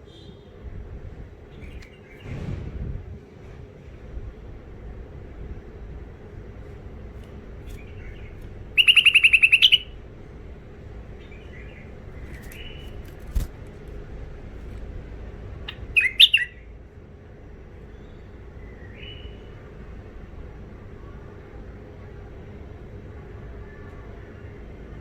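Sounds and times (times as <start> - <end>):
steady low hum: 0.0 - 25.0
bird chattering: 7.8 - 10.0, 15.7 - 16.6.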